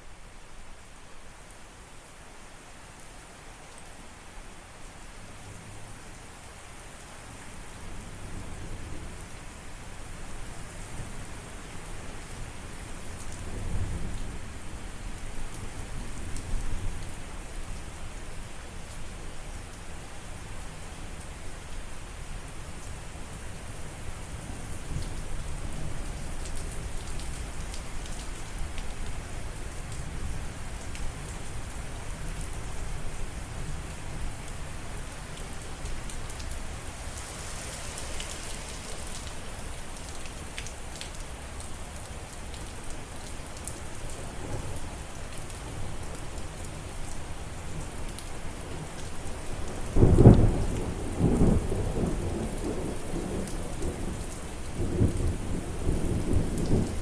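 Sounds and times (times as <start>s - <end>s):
steady rain: 0.0s - 57.0s
thunder clap and rolling rumbles: 50.0s - 57.0s.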